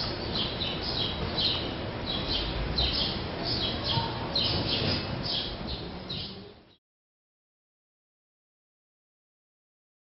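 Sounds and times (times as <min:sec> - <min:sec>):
small bird chirping: 0:00.0 - 0:06.8.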